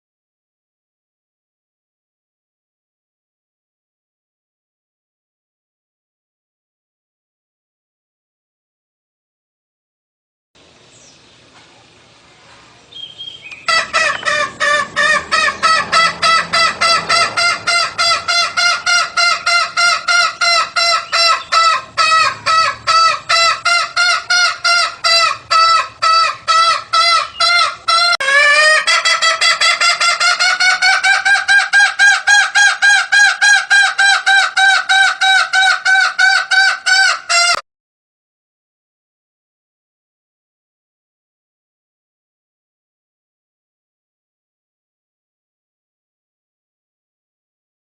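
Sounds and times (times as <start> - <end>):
jungle fowl clucking: 13.0 - 37.6.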